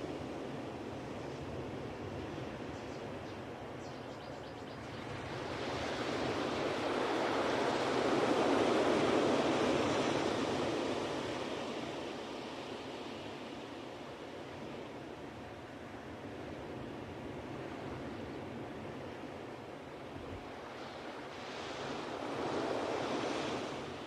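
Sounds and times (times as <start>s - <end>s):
ocean wave surging and washing back: 4.9s - 24.0s.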